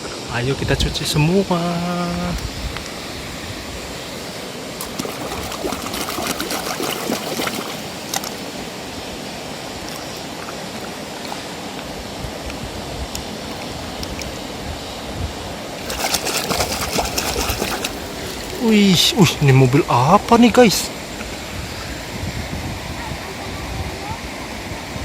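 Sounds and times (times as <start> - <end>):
water running and splashing: 4.1 - 11.5, 15.7 - 19.2.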